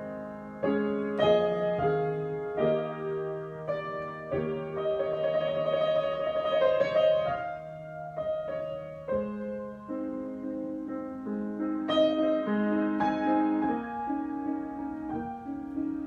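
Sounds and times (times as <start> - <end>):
solo piano improvisation: 0.0 - 16.0.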